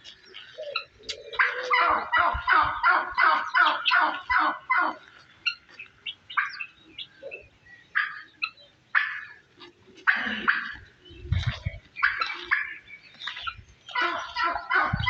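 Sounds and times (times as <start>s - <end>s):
small birds chirping: 0.0s - 15.0s
fowl calling harsh notes: 13.9s - 15.0s.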